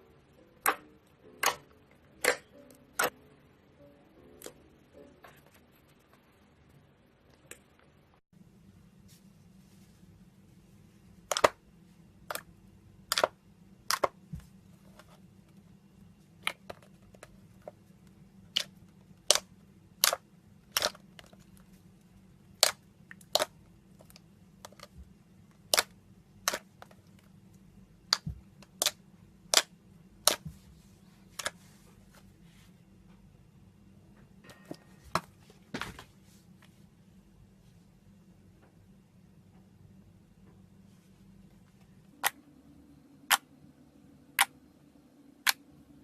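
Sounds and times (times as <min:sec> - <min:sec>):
slime popping and clicking: 0:19.3 - 0:21.0.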